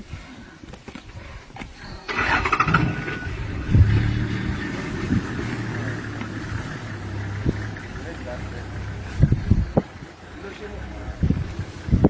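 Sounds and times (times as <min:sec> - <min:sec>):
engine starting and idling: 0:02.0 - 0:09.5.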